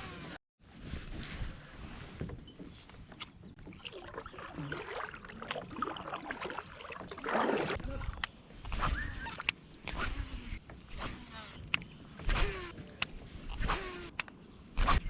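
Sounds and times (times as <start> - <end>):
kayak paddle strokes: 1.8 - 14.2
loud splash: 3.9 - 7.8.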